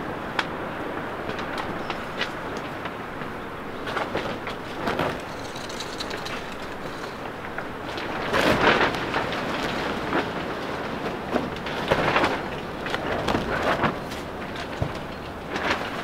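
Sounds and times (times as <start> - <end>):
gusting wind: 0.0 - 16.0
greenhouse rattling: 4.0 - 9.6.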